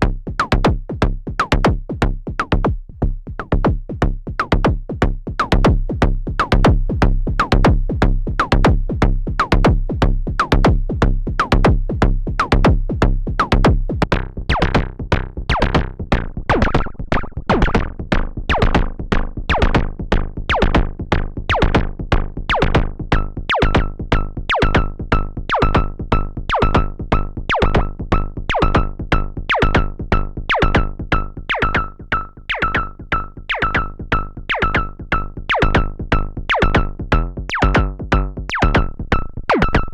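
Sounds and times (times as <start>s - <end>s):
synthesizer percussion hits: 15.5s - 18.9s, 29.5s - 39.9s
deep low boom: 37.1s - 39.9s.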